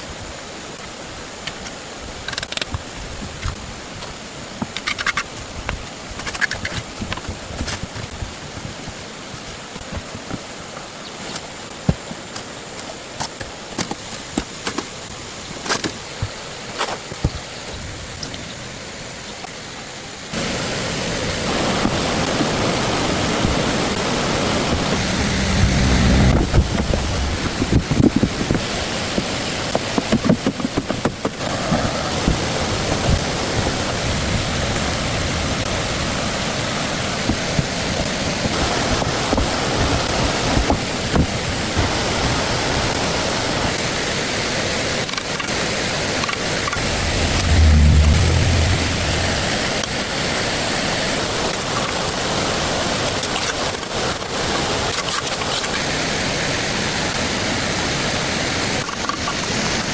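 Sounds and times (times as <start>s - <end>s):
flowing water rushing: 0.0s - 59.9s
low rumble: 24.6s - 28.0s, 46.8s - 49.9s.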